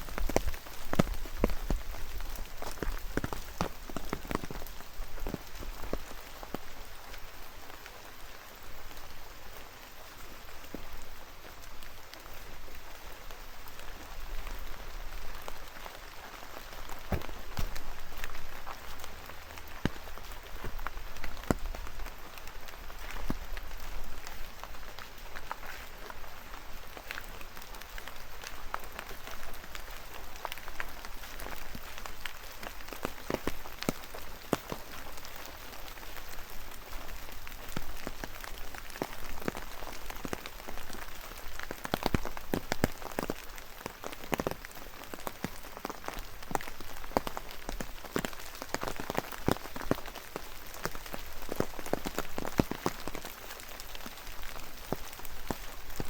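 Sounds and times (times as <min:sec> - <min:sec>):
rain falling: 0:00.0 - 0:56.0
raindrops tapping: 0:00.0 - 0:56.0.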